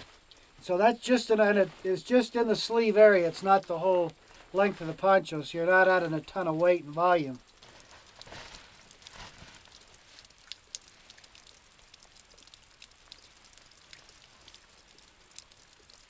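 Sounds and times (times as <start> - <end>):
dripping ticks: 0.0 - 0.7, 1.7 - 4.7, 5.4 - 16.0
soft rustle: 0.0 - 5.2, 7.5 - 11.5
light rain hissing: 0.0 - 16.0.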